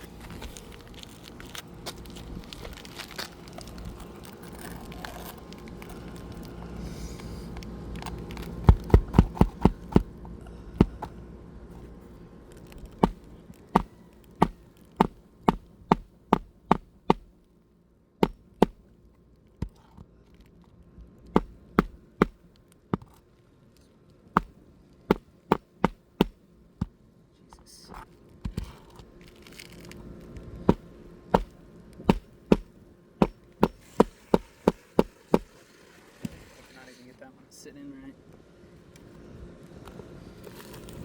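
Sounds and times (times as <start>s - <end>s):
hammer striking roofing nails: 8.6s - 10.1s, 10.8s - 11.1s, 13.0s - 17.4s, 18.2s - 18.8s, 19.6s - 19.8s, 21.4s - 22.4s, 24.4s - 26.4s, 31.4s - 35.5s.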